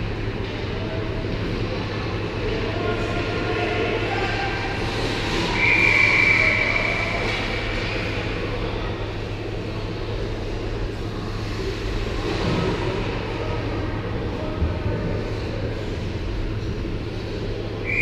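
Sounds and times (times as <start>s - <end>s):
crowd and rink noise: 0.0s - 18.0s
referee's whistle: 5.5s - 7.1s.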